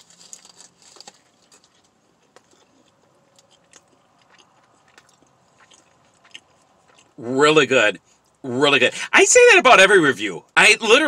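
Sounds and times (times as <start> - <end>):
person chewing food: 0.0 - 7.2.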